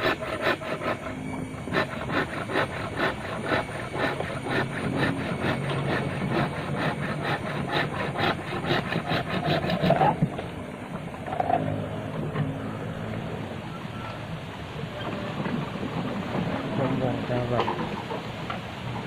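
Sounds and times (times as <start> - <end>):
hand saw cutting bamboo: 0.0 - 10.4.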